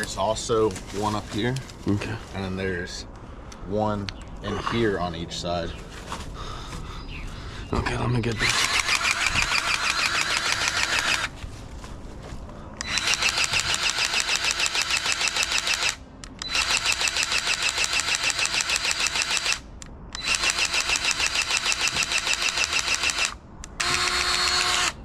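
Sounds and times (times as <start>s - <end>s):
grease gun pump pulsing: 8.4s - 11.3s.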